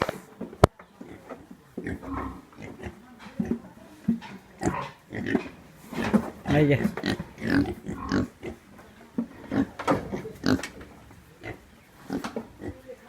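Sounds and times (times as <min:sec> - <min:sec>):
pigs grunting: 0:01.0 - 0:12.9.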